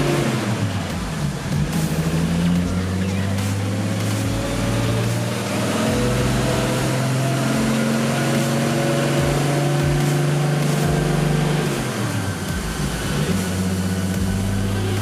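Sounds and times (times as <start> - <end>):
car engine running under load: 0.0 - 15.0.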